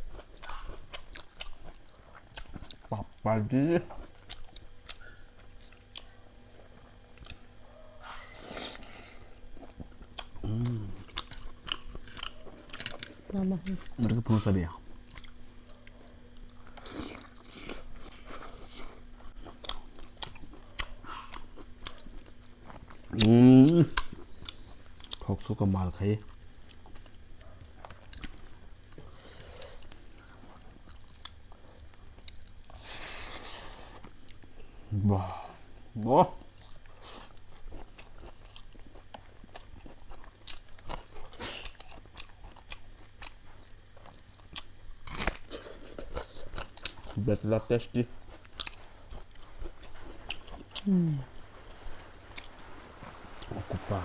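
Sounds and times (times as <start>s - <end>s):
chewing and lip smacking: 0.0s - 3.2s, 3.9s - 13.1s, 14.8s - 25.6s, 26.3s - 32.8s, 36.4s - 47.2s, 48.2s - 53.5s
crunchy bite: 44.4s - 47.0s
moist chewing clicks and smacks: 48.2s - 50.9s.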